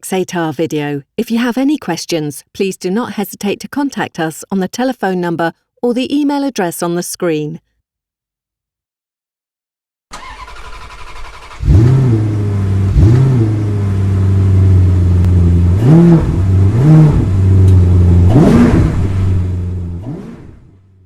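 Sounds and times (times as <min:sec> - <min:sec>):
car engine idling and revving: 0:10.2 - 0:21.0.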